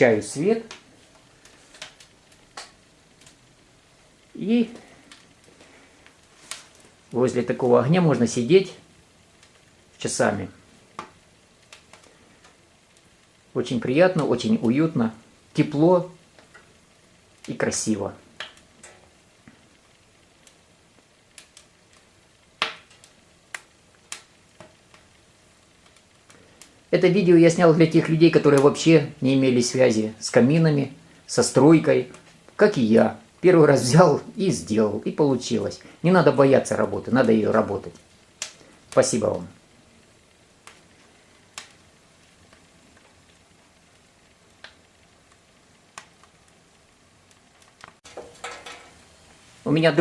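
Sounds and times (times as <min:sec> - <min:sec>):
wood fire crackling and popping: 0:00.0 - 0:50.0.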